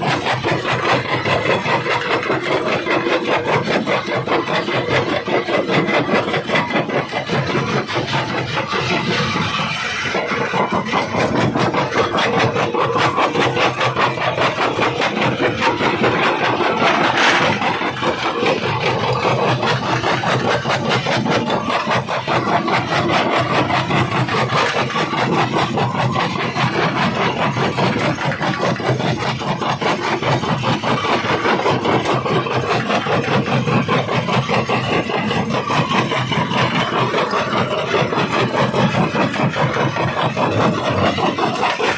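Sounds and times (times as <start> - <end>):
rock crusher machine running: 0.0 - 41.9
stone crackling and grinding: 12.6 - 20.0.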